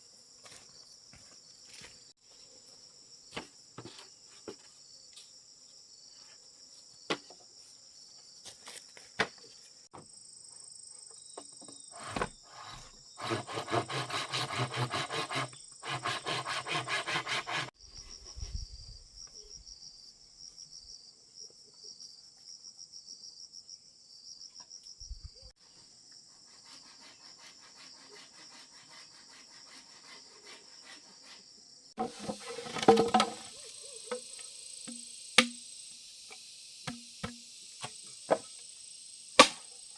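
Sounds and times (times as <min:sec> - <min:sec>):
insects chirring: 0:00.0 - 0:39.9
rhythmic rasping strokes on wood: 0:12.0 - 0:17.8, 0:26.3 - 0:32.1.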